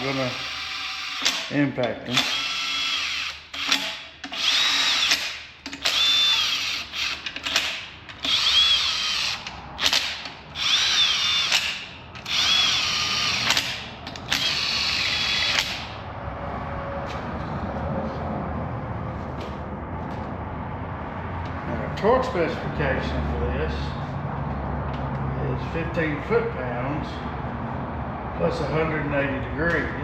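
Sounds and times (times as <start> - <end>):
impact wrench motor whine: 0.0 - 1.5, 2.1 - 16.0.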